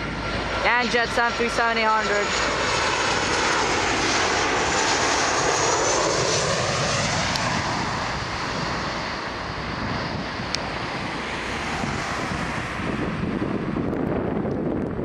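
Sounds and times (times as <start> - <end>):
jet airliner passing: 0.0 - 15.0.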